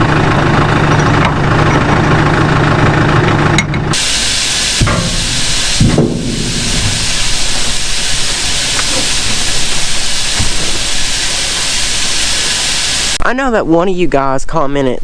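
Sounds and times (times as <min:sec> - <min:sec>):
loud steady hiss: 0:04.0 - 0:13.2.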